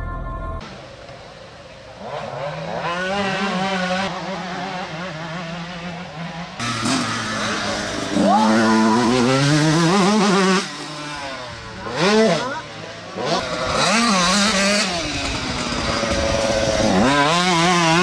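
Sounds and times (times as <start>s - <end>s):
motocross bike engines revving: 0.7s - 18.0s.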